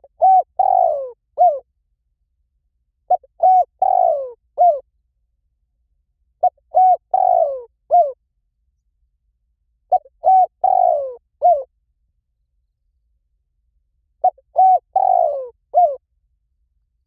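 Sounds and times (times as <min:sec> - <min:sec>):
dove cooing: 0:00.0 - 0:01.6, 0:03.1 - 0:04.8, 0:06.4 - 0:08.2, 0:09.9 - 0:11.7, 0:14.2 - 0:16.0.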